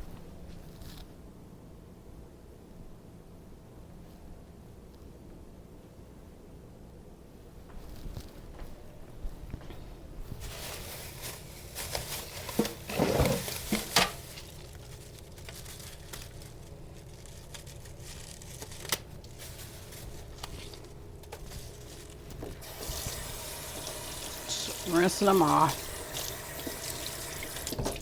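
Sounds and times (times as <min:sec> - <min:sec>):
crinkling and rustling: 0:00.0 - 0:01.2, 0:07.6 - 0:23.9
tap running: 0:22.3 - 0:28.0.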